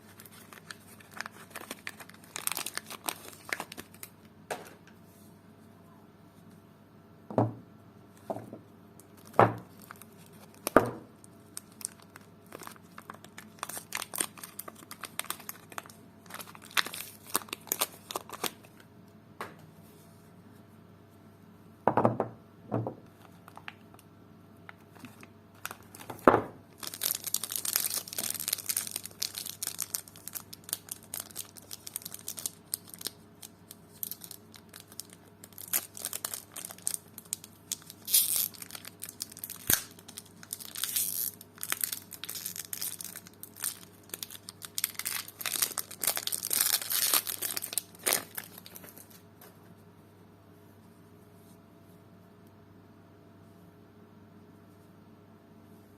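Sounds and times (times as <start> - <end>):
packaging crinkling and tearing: 0.0 - 4.3, 9.1 - 18.9, 23.2 - 24.0, 24.9 - 49.3.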